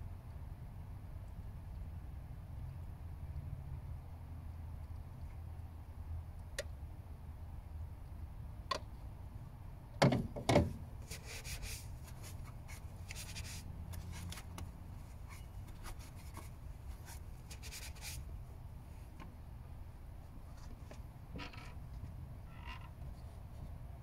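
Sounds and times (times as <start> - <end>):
faint rubbing and scraping: 11.0 - 18.2.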